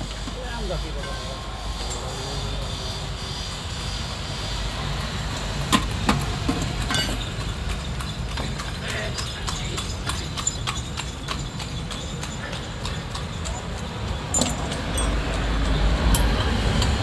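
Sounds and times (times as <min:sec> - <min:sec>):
hand tools tapping on metal: 0:05.7 - 0:17.0.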